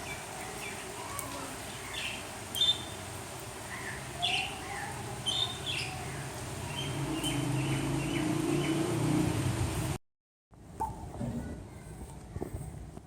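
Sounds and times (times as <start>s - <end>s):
small birds chirping: 0.0s - 9.3s.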